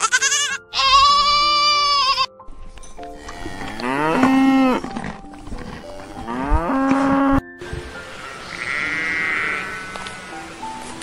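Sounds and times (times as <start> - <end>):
sheep bleating: 0.0 - 2.3, 8.5 - 10.3
cow mooing: 3.0 - 7.4, 8.5 - 10.3.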